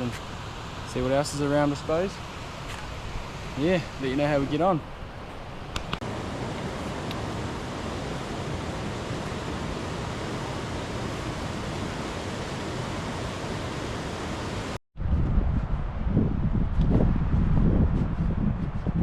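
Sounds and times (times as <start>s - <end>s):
fast-flowing river rushing: 6.0s - 14.8s.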